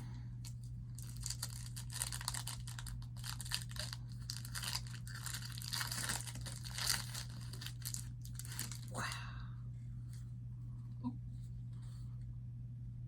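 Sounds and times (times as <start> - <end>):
foil wrapper tearing and crinkling: 0.9 - 8.9.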